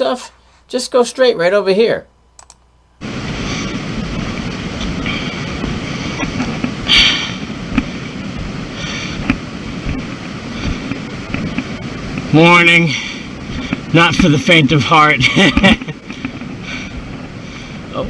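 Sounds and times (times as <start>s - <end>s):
wind rushing over microphone: 3.0s - 18.0s.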